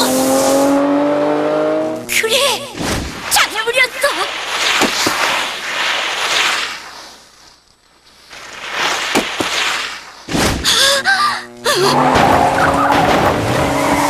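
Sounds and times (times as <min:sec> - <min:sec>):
cartoon racing car engine whine: 0:00.0 - 0:02.2, 0:10.6 - 0:14.0.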